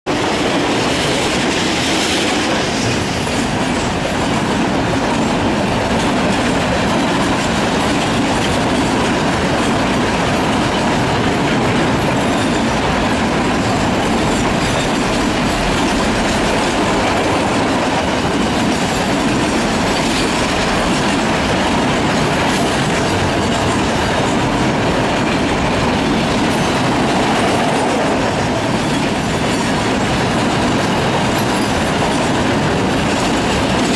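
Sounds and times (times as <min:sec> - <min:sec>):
diesel locomotives passing: 0:00.1 - 0:33.9
freight wagons rolling on rails: 0:00.1 - 0:33.9.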